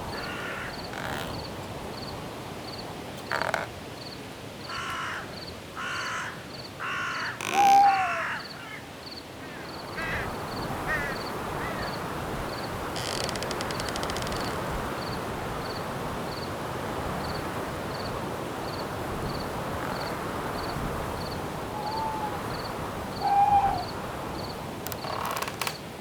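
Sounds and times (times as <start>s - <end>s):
owl hooting: 7.2s - 8.8s, 21.6s - 24.0s
wind hiss: 9.8s - 26.0s
fast clicking: 13.2s - 14.6s, 24.9s - 25.8s
cricket chirping: 17.2s - 25.8s.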